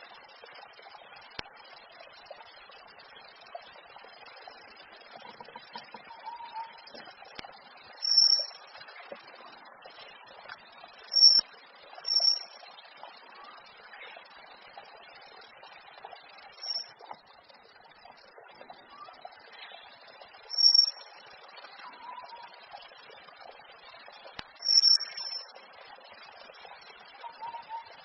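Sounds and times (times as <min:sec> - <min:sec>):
faint outdoor background: 0:00.0 - 0:28.0
bird whistling calls: 0:06.0 - 0:06.8, 0:08.0 - 0:08.5, 0:12.1 - 0:12.4, 0:16.6 - 0:16.9, 0:20.5 - 0:21.0, 0:24.6 - 0:25.5, 0:27.2 - 0:27.9.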